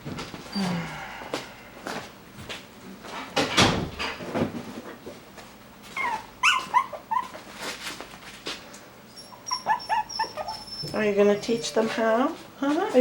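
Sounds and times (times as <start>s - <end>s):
puppies whimpering and yipping: 5.9s - 7.5s, 9.1s - 11.9s.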